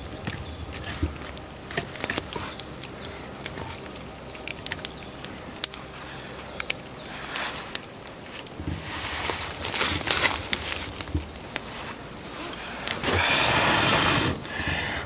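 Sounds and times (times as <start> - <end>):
sharp clicks and snaps: 0.0 - 13.3
crunching footsteps in snow: 0.0 - 15.0
small birds chirping: 0.0 - 15.0.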